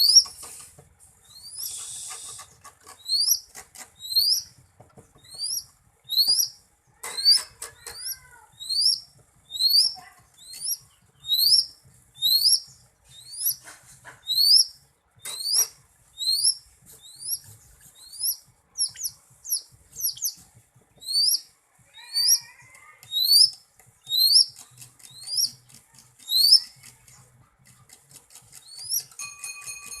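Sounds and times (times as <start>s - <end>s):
bird whistling rising notes: 8.6s - 12.6s, 21.0s - 21.4s.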